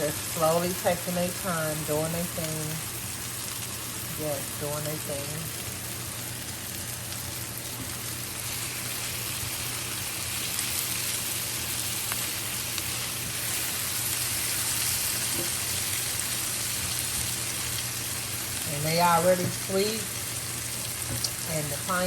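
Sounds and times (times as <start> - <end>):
food sizzling in a skillet: 0.0 - 22.0.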